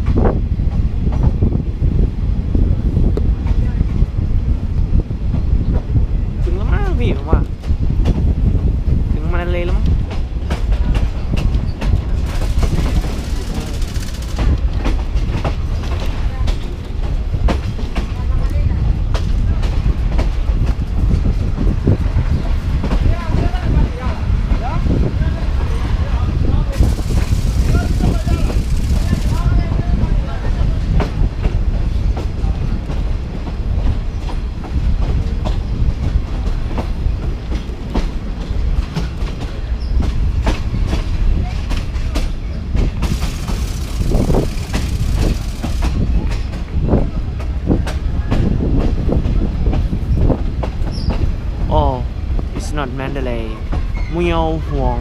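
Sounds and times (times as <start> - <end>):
train rumbling on rails: 0.0 - 55.0
wheel clacks and knocks: 10.0 - 18.2, 36.4 - 51.3.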